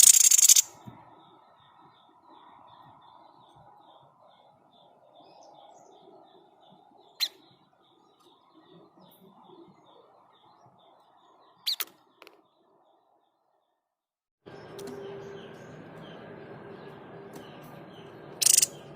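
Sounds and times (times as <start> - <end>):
bird's sharp shot calls: 0.0 - 0.8, 18.4 - 18.8
faint high chirping: 0.0 - 13.8, 14.5 - 18.9.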